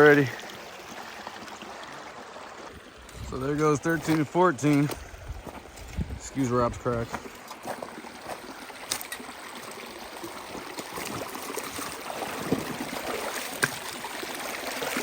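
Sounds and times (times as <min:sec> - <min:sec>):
water rushing through sluice box: 0:00.0 - 0:15.0
stones knocking: 0:10.6 - 0:14.0.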